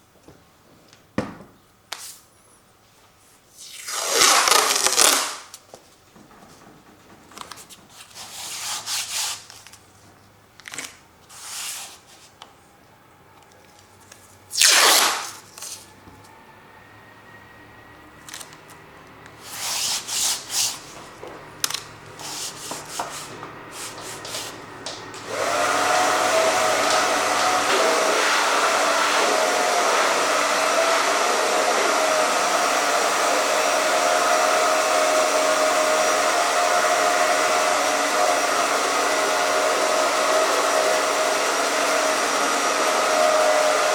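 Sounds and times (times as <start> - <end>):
hair dryer running: 4.0 - 5.3, 18.3 - 43.9
paint scraping swishes on canvas: 19.4 - 21.2, 22.2 - 25.5.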